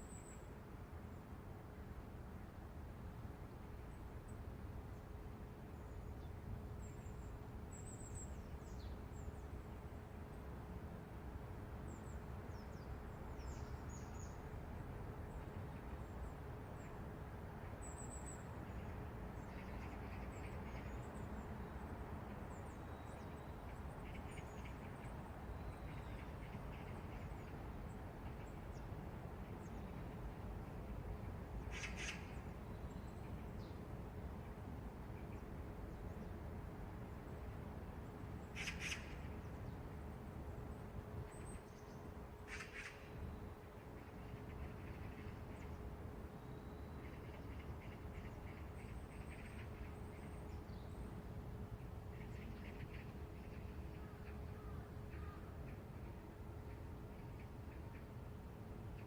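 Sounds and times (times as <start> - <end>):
low city rumble: 0.0 - 59.0
harsh rasping bird calls: 38.6 - 39.2.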